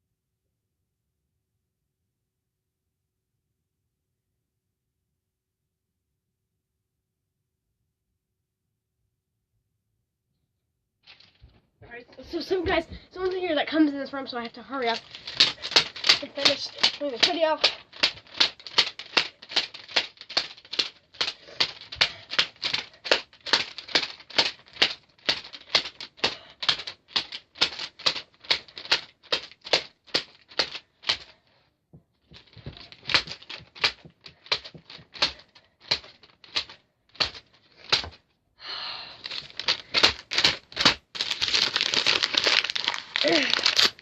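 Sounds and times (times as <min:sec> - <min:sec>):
steady rustling: 0:11.0 - 0:38.3, 0:39.2 - 0:44.0
rapid sharp taps: 0:14.8 - 0:31.3, 0:32.0 - 0:38.2.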